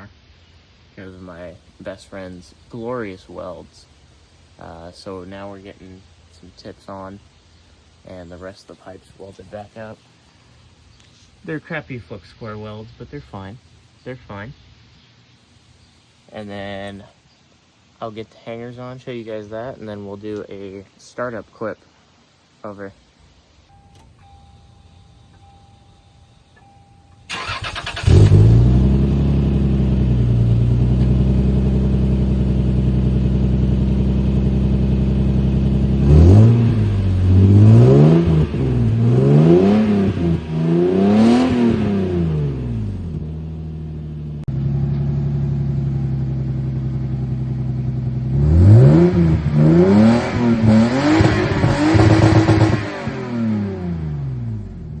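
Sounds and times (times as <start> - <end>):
car engine starter cranking: 26.6 - 30.0
loud car engine idling and revving: 27.8 - 55.0.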